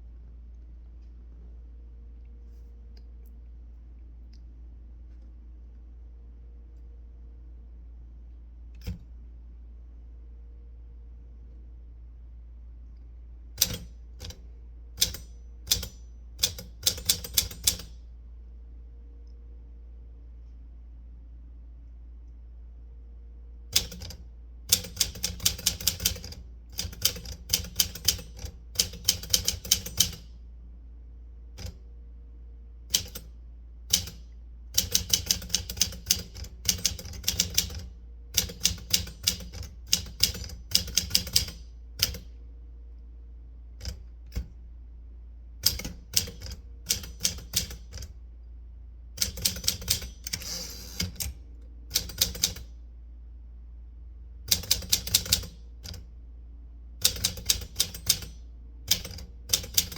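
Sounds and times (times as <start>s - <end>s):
typewriter keys striking: 13.6s - 14.4s, 15.0s - 17.9s, 23.8s - 30.3s, 32.9s - 33.3s, 34.8s - 42.2s, 45.6s - 48.1s, 49.2s - 51.3s, 51.9s - 52.7s, 54.5s - 56.0s, 57.0s - 59.9s.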